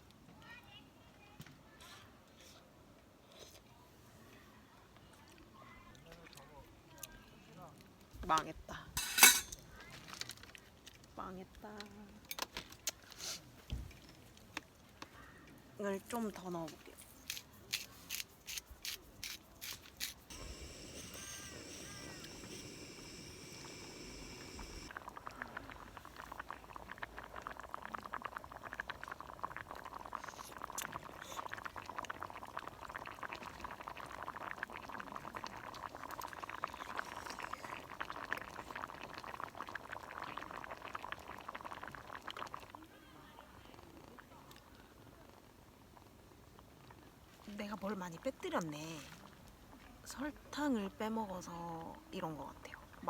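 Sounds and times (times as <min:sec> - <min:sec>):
liquid pouring hiss: 0:17.2 - 0:32.7
pasta bubbling and popping: 0:17.2 - 0:42.9.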